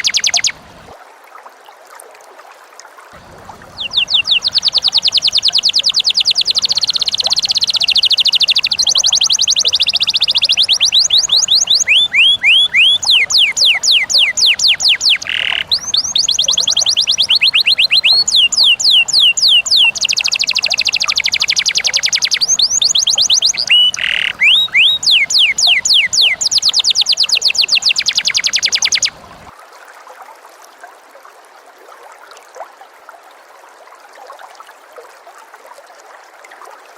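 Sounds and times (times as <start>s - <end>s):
caged songbirds trilling: 0.0s - 0.6s, 3.2s - 29.5s
faint steady hiss: 0.0s - 36.9s.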